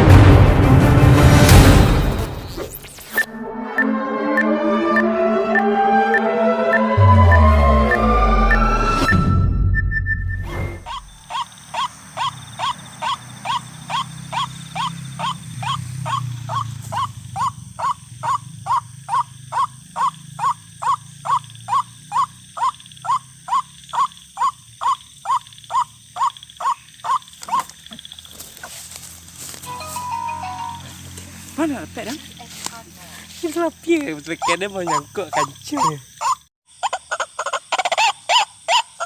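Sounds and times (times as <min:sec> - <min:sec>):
waterhen calling repeated notes: 0:03.2 - 0:09.2, 0:10.1 - 0:28.1, 0:29.7 - 0:31.0, 0:34.2 - 0:39.0
low hum: 0:06.8 - 0:10.9.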